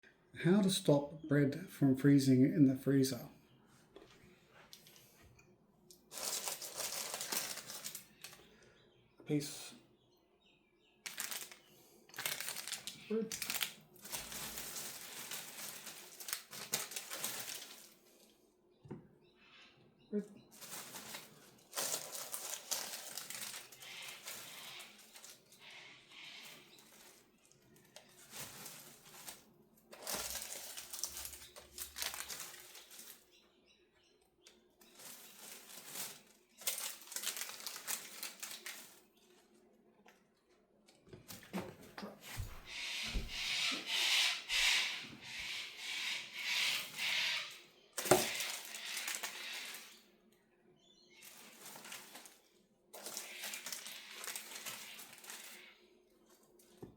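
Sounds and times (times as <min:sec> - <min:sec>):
baking paper rustling: 0:06.0 - 0:08.5, 0:11.0 - 0:18.3, 0:20.5 - 0:33.3, 0:34.7 - 0:39.5, 0:41.3 - 0:47.1, 0:48.0 - 0:50.1, 0:51.1 - 0:56.9.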